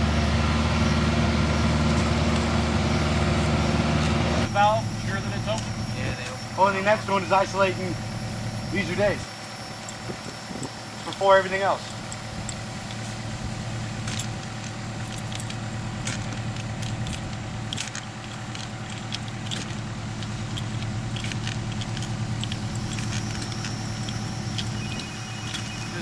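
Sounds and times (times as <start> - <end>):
engine idling: 0.0 - 26.0
metallic clicks and rattles: 14.0 - 25.7.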